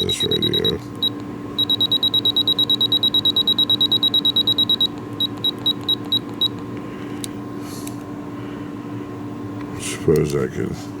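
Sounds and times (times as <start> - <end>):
short electronic beeps: 0.0 - 6.6
faint steady hum: 0.0 - 11.0.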